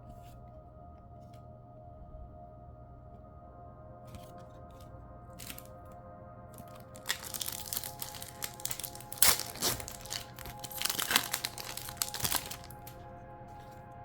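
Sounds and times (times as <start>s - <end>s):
background music: 0.0s - 14.0s
card pack wrapper crinkling: 4.2s - 5.8s, 6.6s - 13.8s.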